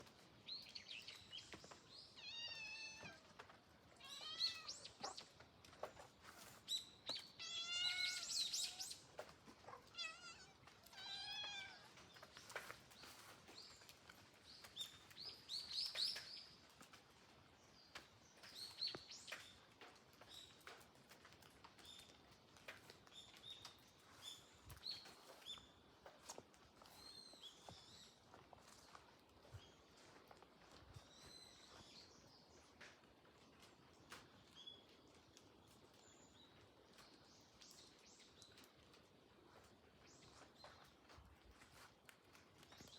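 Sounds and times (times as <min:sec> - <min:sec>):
kittens meowing: 0:04.0 - 0:04.9, 0:07.4 - 0:08.8, 0:09.8 - 0:12.0.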